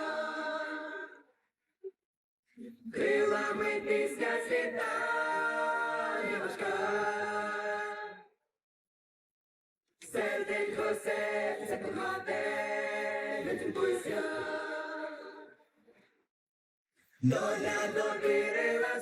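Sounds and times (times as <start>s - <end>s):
voices singing in harmony: 0.0s - 1.3s, 2.6s - 8.3s, 10.0s - 15.6s, 17.2s - 19.0s.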